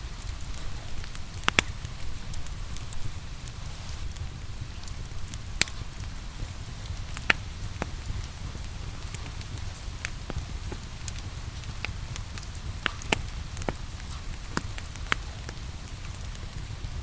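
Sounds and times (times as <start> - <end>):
rain hissing: 0.0 - 17.0
wood fire crackling and popping: 0.0 - 17.0.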